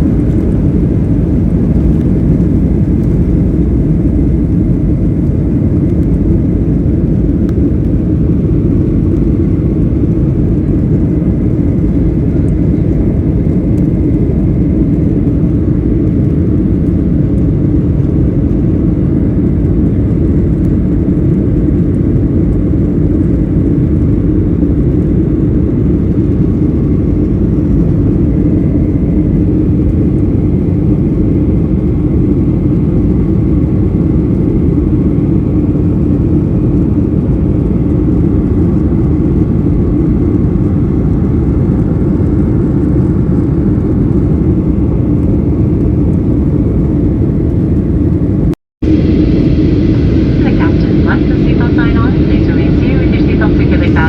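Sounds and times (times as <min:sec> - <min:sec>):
airliner engines droning: 0:00.0 - 0:54.0
faint steady whine: 0:48.8 - 0:54.0
rushing airflow: 0:48.8 - 0:54.0.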